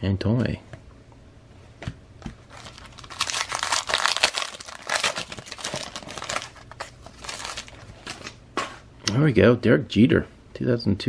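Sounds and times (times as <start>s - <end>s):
foil wrapper crinkling and tearing: 2.5s - 8.4s.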